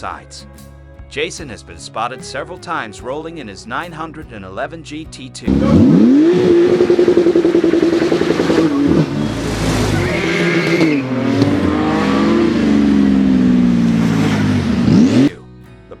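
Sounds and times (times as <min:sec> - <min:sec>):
car engine at high revs: 0:05.5 - 0:15.3.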